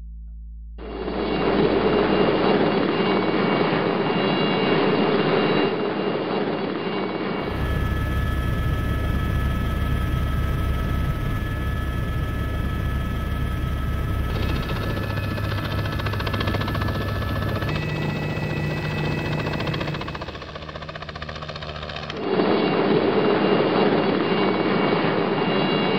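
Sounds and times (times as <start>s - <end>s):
helicopter rotor and engine drone: 0.8s - 25.9s
thin whining tones: 7.4s - 22.2s.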